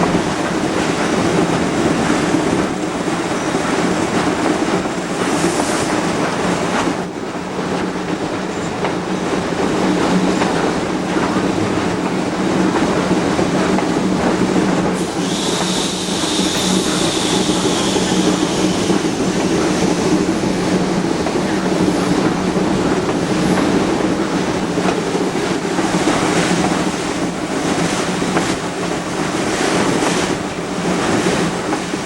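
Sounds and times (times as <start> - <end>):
steam locomotive chugging: 0.0 - 32.0
high hissing squeal: 15.0 - 20.1.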